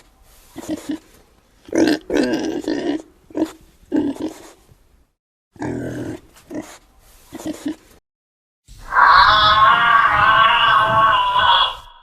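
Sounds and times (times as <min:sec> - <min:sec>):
animal grunting calls: 0:08.9 - 0:12.0.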